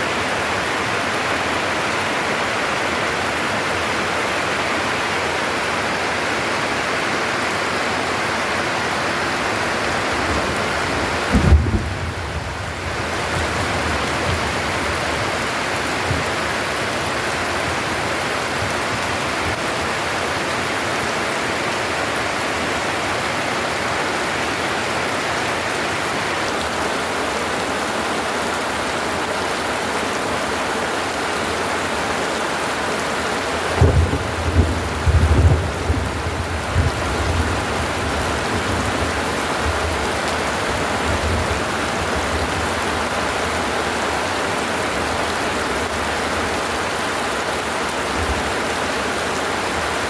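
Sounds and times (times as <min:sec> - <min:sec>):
heavy rain pouring: 0:00.0 - 0:50.0
low rumble of thunder: 0:09.7 - 0:19.8, 0:33.7 - 0:43.5.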